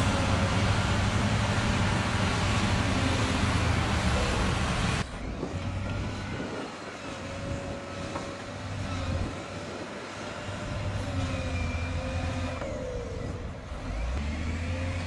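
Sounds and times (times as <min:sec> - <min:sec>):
truck engine running: 0:00.0 - 0:06.4.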